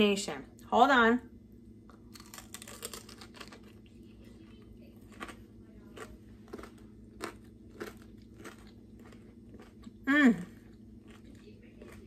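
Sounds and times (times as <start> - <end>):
person chewing crunchy food: 1.8 - 12.0.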